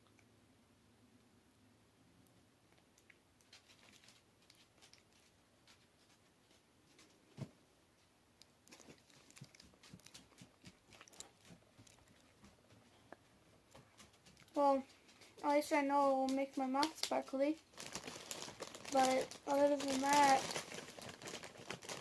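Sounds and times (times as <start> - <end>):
person chewing grapes: 2.2 - 5.8, 8.4 - 15.4, 17.6 - 22.0.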